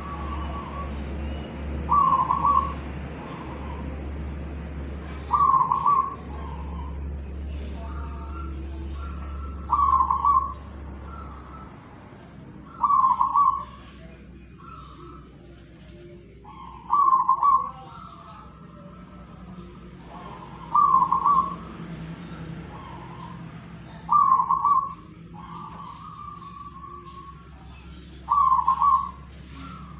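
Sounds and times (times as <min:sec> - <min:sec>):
bird whistled call: 0:00.0 - 0:03.9, 0:05.3 - 0:07.0, 0:08.1 - 0:11.7, 0:12.7 - 0:14.0, 0:20.4 - 0:21.7, 0:24.0 - 0:29.9.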